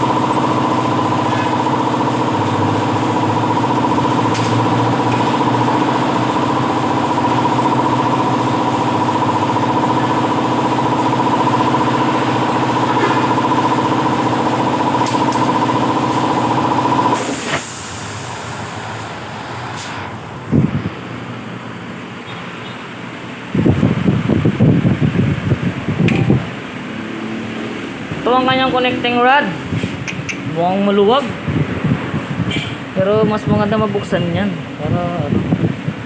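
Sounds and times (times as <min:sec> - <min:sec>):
motor humming: 0:00.0 - 0:18.5.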